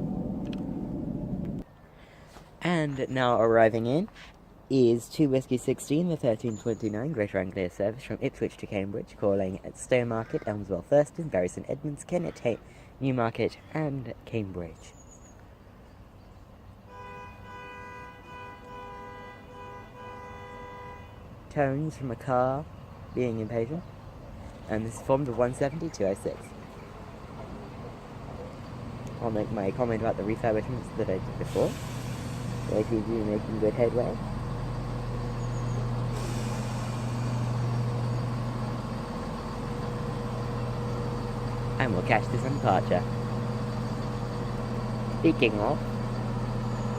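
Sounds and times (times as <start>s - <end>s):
car horn two notes: 16.9s - 21.2s
diesel train engine idling: 19.7s - 46.9s
air hissing: 31.4s - 33.5s, 35.2s - 40.0s.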